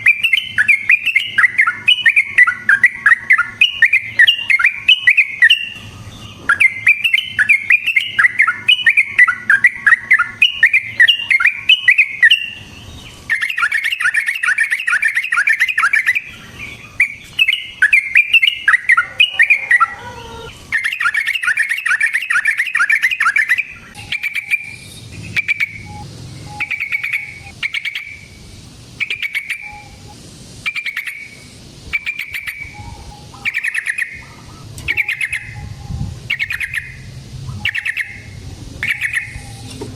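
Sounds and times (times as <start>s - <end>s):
bird chattering song: 0.0s - 39.9s
short bird call notes: 17.0s - 24.8s, 25.4s - 28.3s.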